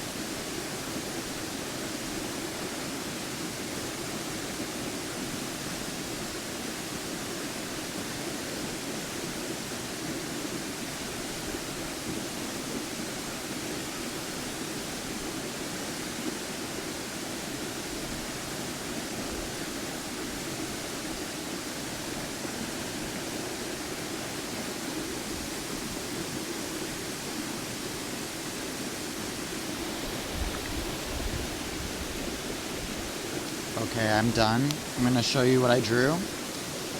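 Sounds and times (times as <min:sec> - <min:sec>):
waterfall roaring: 0:21.4 - 0:36.9.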